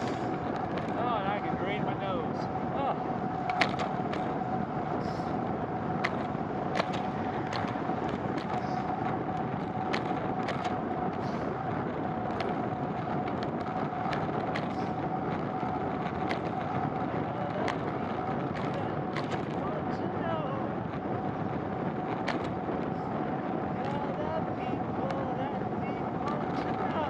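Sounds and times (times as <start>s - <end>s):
bicycle road noise in rain: 0.0s - 27.0s
sharp clicks and ticks: 3.4s - 4.4s, 5.9s - 8.6s, 9.3s - 10.8s, 12.2s - 20.1s, 22.0s - 22.9s.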